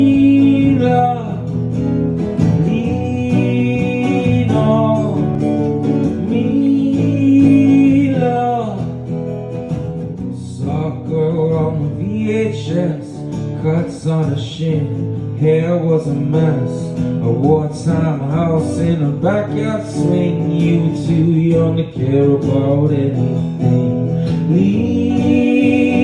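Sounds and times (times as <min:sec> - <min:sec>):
acoustic guitars playing: 0:00.0 - 0:26.0
person singing wordless notes: 0:06.2 - 0:08.8, 0:24.5 - 0:26.0.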